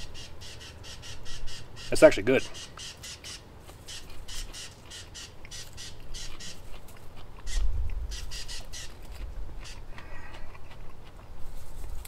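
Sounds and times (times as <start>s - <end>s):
popcorn crunching: 5.4s - 7.5s, 8.7s - 12.0s.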